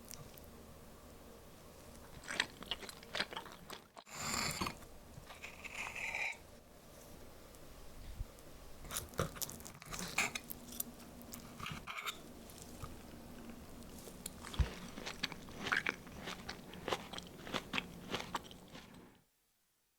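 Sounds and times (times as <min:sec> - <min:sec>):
person chewing crisp food: 0:02.0 - 0:06.1, 0:08.9 - 0:11.5, 0:12.6 - 0:19.2.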